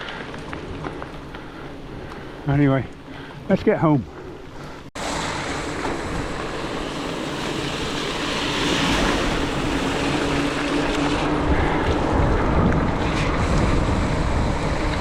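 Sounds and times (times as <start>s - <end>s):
bicycle tyres on wet road: 0.0s - 15.0s
wind over microphone: 5.0s - 15.0s.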